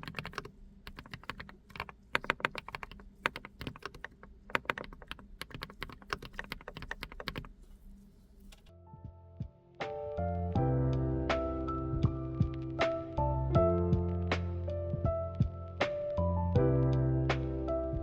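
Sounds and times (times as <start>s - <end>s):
mechanical keyboard typing: 0.0s - 7.5s.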